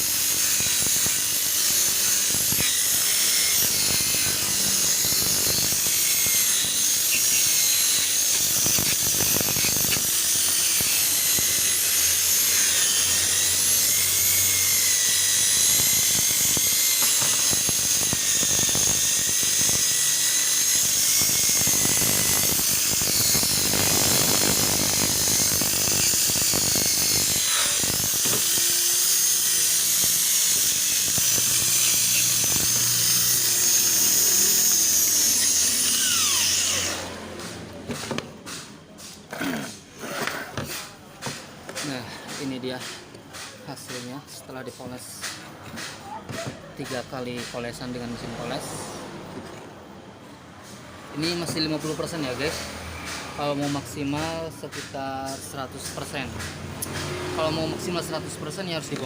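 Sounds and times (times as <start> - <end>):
polishing machine whining: 0.0 - 37.1.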